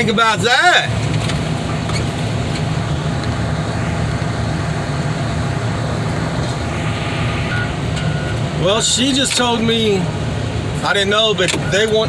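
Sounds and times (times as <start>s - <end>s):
heavy equipment engine droning: 0.0s - 12.0s.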